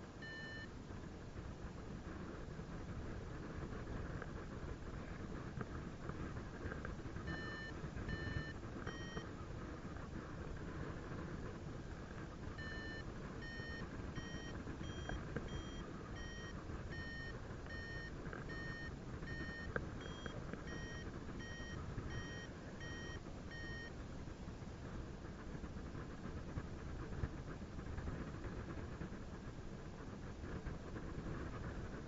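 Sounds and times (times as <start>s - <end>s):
variometer beeping: 0.2s - 0.7s, 7.2s - 9.3s, 12.6s - 24.0s.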